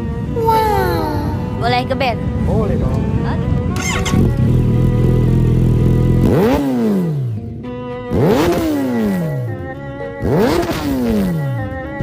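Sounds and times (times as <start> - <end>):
engine revving: 3.7 - 11.8.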